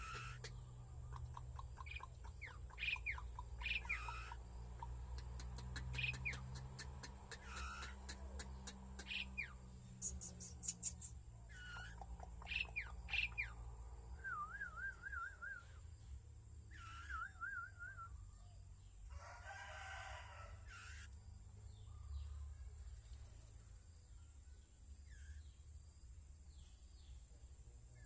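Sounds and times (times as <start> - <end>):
warbled bird whistle: 0.0 - 0.6, 1.8 - 4.4, 7.3 - 13.5, 14.2 - 15.8, 16.7 - 18.2
birds chirping: 0.0 - 19.1
rooster crowing: 19.1 - 20.8.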